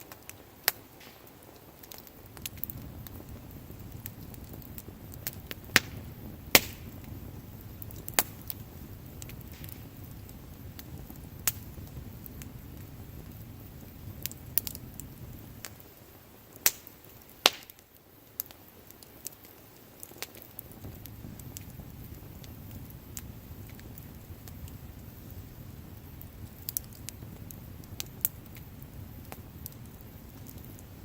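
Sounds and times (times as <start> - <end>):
bonfire crackling and popping: 0.0 - 31.0
low steady fire rumble: 0.0 - 31.0.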